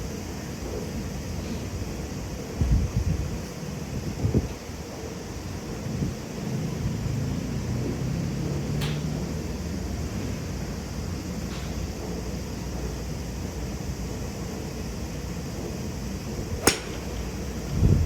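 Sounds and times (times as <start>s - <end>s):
golf club striking ball: 16.6s - 17.8s.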